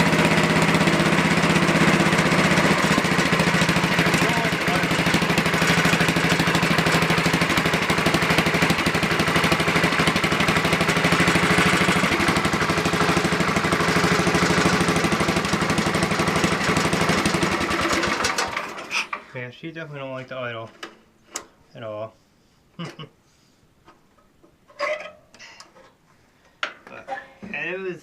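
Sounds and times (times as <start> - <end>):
small tractor engine running: 0.0 - 19.2.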